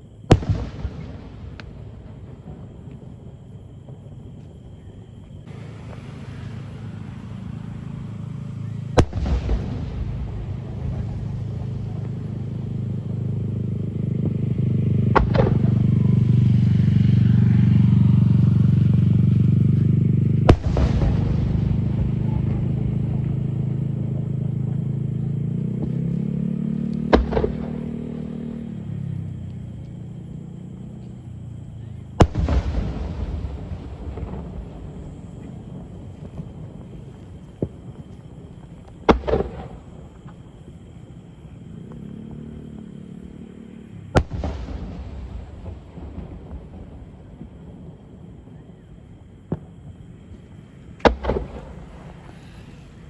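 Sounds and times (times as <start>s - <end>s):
loud low hum: 5.5s - 37.3s.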